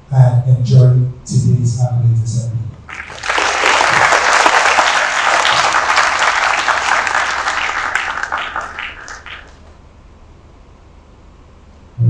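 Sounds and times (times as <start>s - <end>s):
audience applauding: 2.9s - 9.8s.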